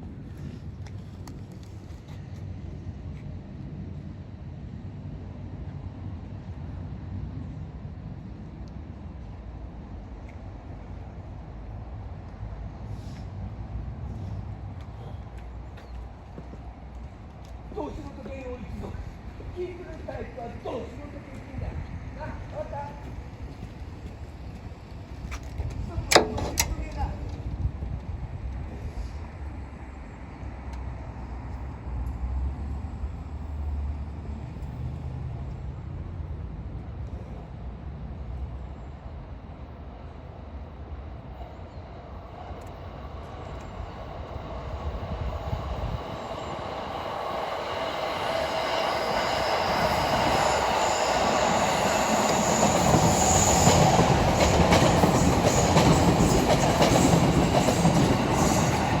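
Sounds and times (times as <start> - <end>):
train rumble: 0.0 - 59.0
wheels clicking over rail joints: 25.1 - 27.7.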